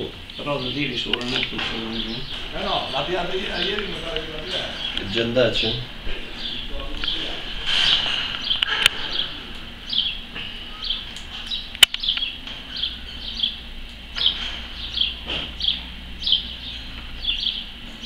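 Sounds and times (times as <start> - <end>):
small bird chirping: 0.0 - 18.0
sharp click: 11.2 - 12.3.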